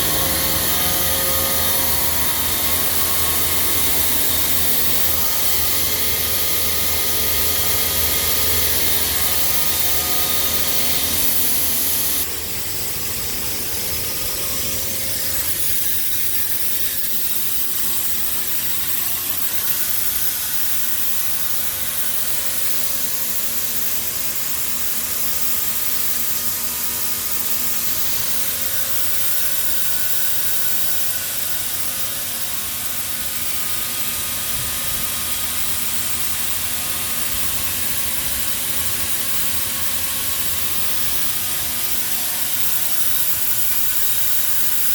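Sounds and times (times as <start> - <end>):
blower whining: 0.0 - 23.3
grain vacuum rushing hiss: 0.0 - 44.9.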